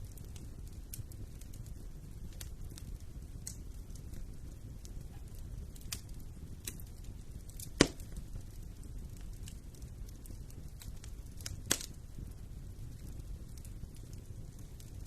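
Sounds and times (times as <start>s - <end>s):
fire crackling: 0.0s - 15.0s
fire rumbling: 0.0s - 15.0s
sharp pop of fire: 7.5s - 8.4s, 10.9s - 12.0s.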